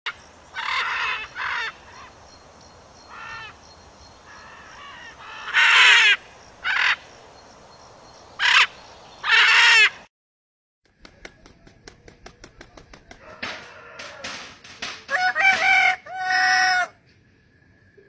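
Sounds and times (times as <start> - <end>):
harsh bird squawks: 0.5 - 2.2, 3.1 - 3.6, 4.3 - 7.1, 8.4 - 10.1.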